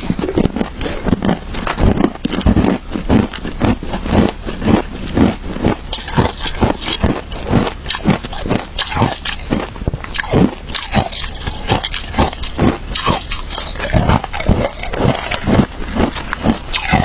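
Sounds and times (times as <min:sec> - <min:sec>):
chewing crunchy ice: 0:00.0 - 0:17.0.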